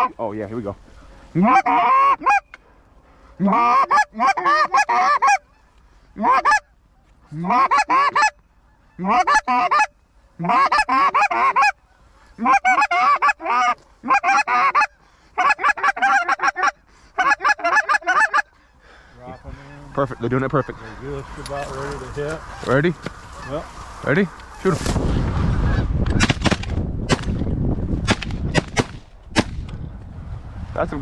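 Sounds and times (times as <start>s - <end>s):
goose call honks and clucks: 1.2s - 2.6s, 3.3s - 18.6s, 19.2s - 24.9s.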